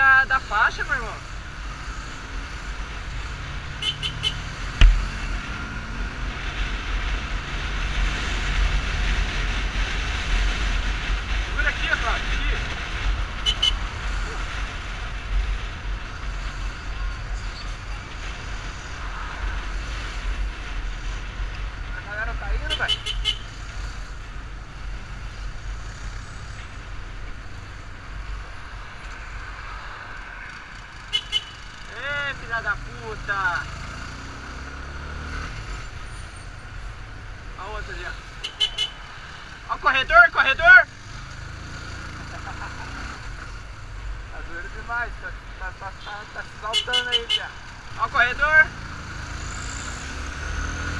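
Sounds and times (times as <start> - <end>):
motorcycle engine: 1.2 - 16.9, 22.5 - 39.8, 40.4 - 44.5, 45.4 - 50.9
sharp thump: 4.7 - 5.2.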